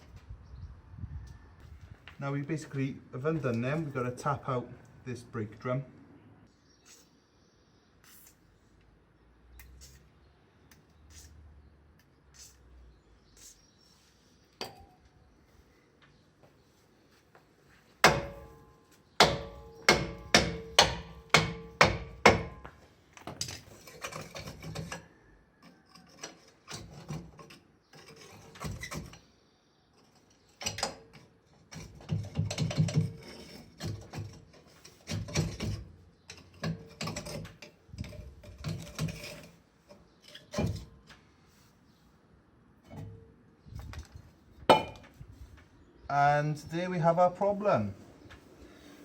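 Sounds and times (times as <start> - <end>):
knocks and scraping: 17.3 - 25.1, 25.9 - 29.3, 30.0 - 41.8, 42.8 - 45.7
hammer striking metal drum: 19.2 - 22.6.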